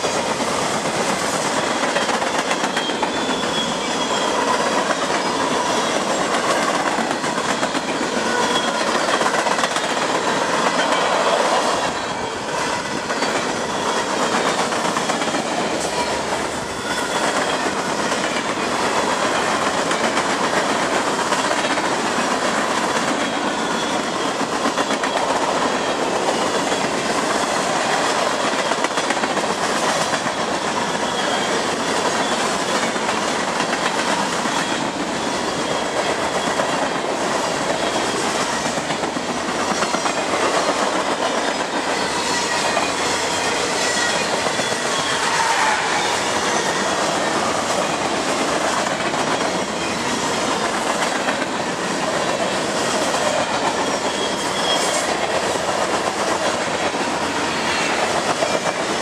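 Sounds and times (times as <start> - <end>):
freight train cars rolling past: 0.0 - 59.0
steel wheels on rails: 0.0 - 59.0.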